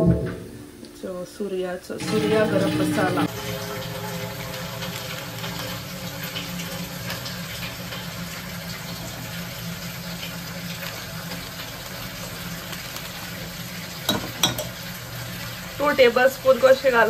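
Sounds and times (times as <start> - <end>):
onions sizzling in hot oil: 1.0 - 17.0
ladle scraping pot: 14.1 - 14.8.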